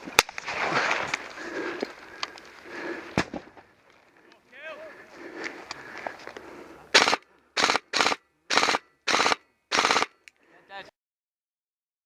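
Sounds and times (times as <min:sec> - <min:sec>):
automatic gunfire bursts: 0:07.0 - 0:10.2.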